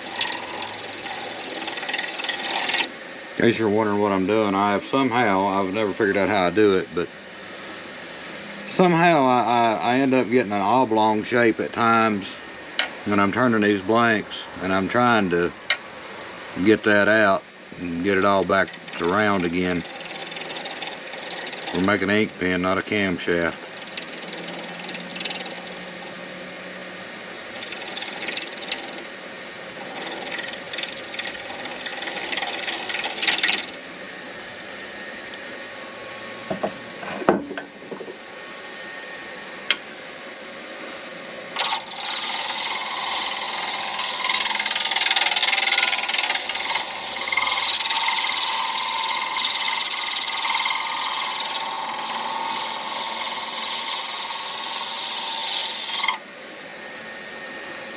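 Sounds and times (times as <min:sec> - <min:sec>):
lathe turning tool cutting: 0:00.0 - 0:06.4, 0:16.6 - 0:26.2, 0:27.4 - 0:33.8, 0:41.6 - 0:56.2.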